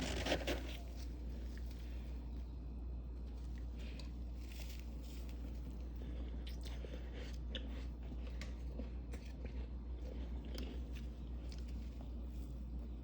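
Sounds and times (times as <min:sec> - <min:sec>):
frost being chewed: 0:03.2 - 0:13.0.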